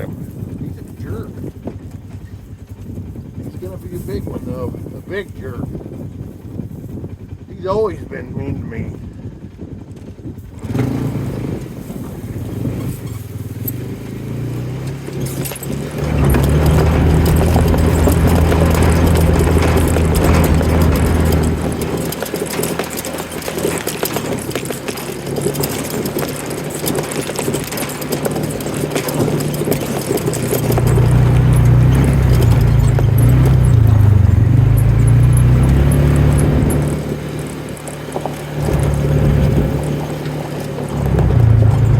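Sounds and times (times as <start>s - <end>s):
vehicle engine running: 0.0s - 41.9s
knocks and rattles: 11.0s - 41.9s.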